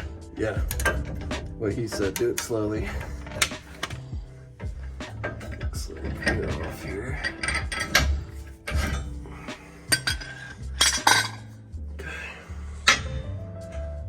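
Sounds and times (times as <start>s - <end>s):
steel tools clanking on metal: 5.1s - 9.2s, 9.9s - 11.5s.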